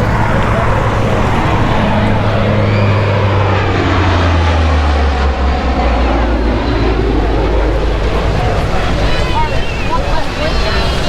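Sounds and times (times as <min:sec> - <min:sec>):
jet aircraft passing low: 0:00.0 - 0:11.0.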